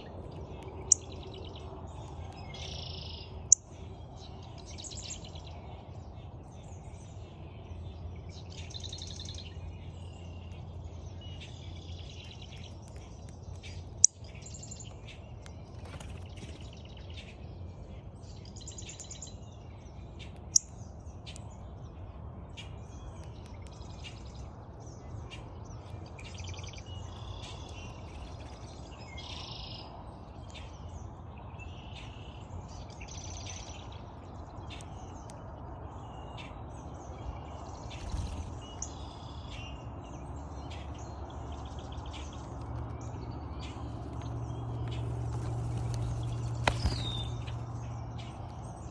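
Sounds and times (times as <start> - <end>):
birds chirping and calling: 36.4 - 48.9
steady low hum: 42.3 - 48.9.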